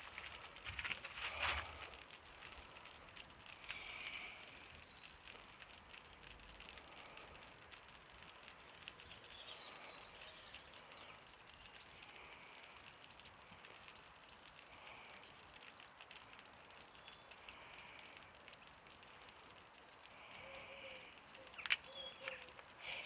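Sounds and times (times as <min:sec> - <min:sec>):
faint crackle of ticks: 0:00.0 - 0:23.0.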